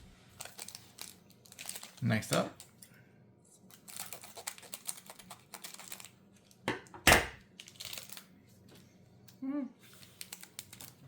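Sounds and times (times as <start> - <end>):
foil wrapper crinkling: 0.0 - 2.8, 3.6 - 6.6, 7.4 - 8.4, 9.8 - 11.0.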